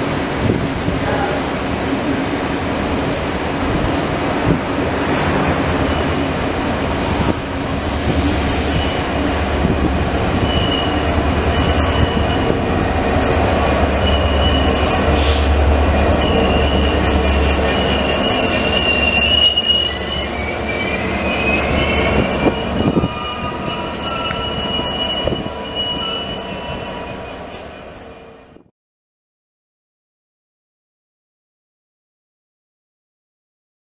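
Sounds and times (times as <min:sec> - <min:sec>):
diesel locomotive engine rumble: 0:00.0 - 0:28.7
wheels squealing on rails: 0:03.8 - 0:28.7.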